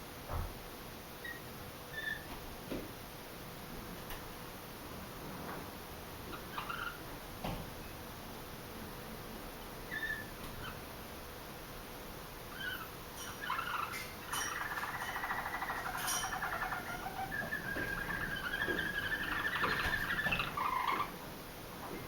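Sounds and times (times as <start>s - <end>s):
canary singing rolling trills: 6.3s - 7.1s, 9.9s - 10.9s, 12.5s - 21.2s.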